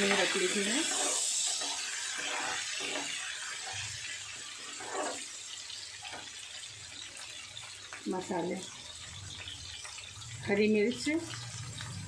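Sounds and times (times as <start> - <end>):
ladle scraping pan: 0.0 - 5.4
paste sizzling in hot oil: 0.0 - 12.0.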